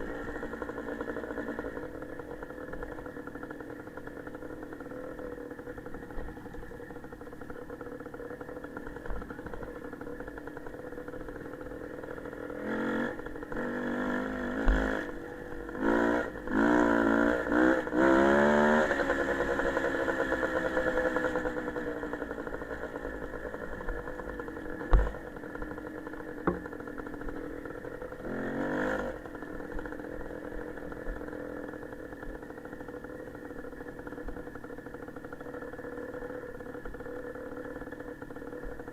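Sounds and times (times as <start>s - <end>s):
motorcycle engine revving: 0.0s - 38.9s
sharp knocks: 26.4s - 26.6s.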